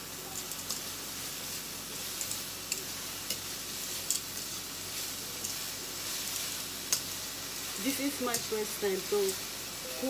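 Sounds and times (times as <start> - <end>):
vegetables sizzling in a frying pan: 0.0 - 10.0
metal tongs clicking on pan: 0.3 - 0.9, 2.1 - 4.5, 5.4 - 5.7, 6.9 - 7.2, 8.1 - 9.4.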